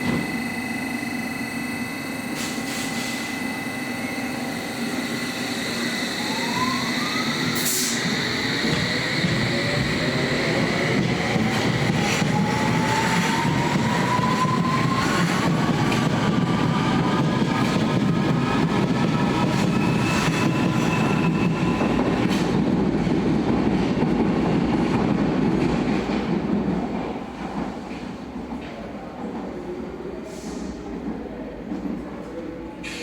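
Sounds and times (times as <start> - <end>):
train traction motor whine: 0.0 - 22.6.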